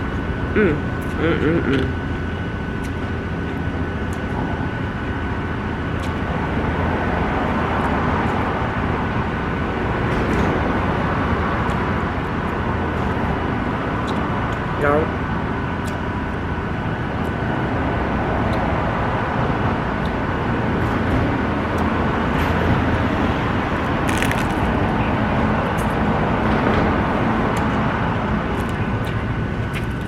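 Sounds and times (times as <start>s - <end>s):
city traffic noise: 0.0s - 30.0s
portable fan whining: 0.0s - 30.0s.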